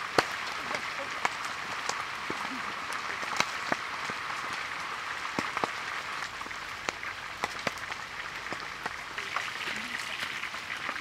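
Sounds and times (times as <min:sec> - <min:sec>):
fish frying in oil: 0:00.0 - 0:11.0
oil pops and crackles: 0:00.0 - 0:11.0.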